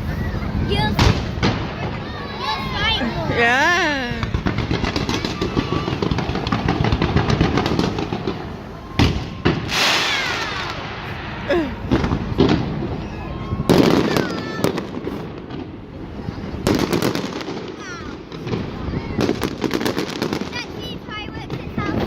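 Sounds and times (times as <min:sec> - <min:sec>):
fireworks bangs: 0:00.0 - 0:22.0
fireworks crackling: 0:00.0 - 0:22.0
long falling whistle: 0:08.7 - 0:10.7.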